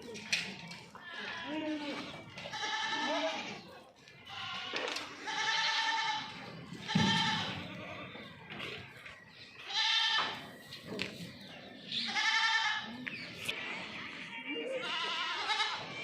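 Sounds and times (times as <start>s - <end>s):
goats bleating: 0.8s - 3.6s, 4.2s - 8.2s, 9.6s - 10.4s, 11.9s - 12.9s, 14.0s - 16.0s.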